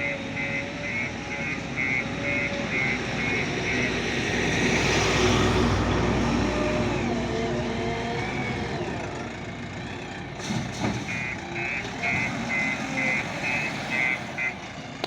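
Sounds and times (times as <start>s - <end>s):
reversing alarm beeping: 0.0s - 4.6s, 10.7s - 14.8s
diesel engine working under load: 0.0s - 15.0s.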